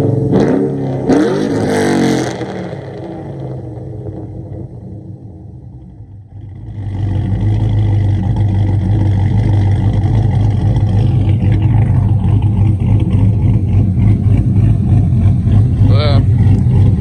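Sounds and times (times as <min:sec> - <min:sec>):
loud truck engine exhaust: 0:06.6 - 0:17.0.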